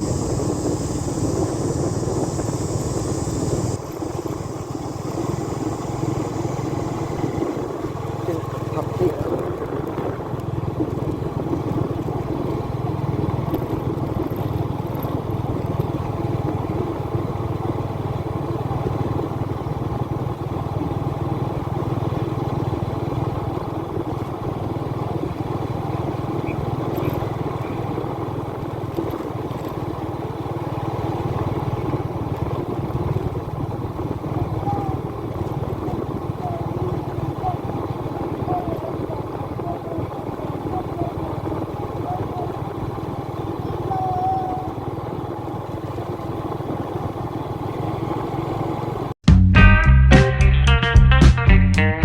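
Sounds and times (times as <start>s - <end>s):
motorbike engine running: 0.0s - 52.0s.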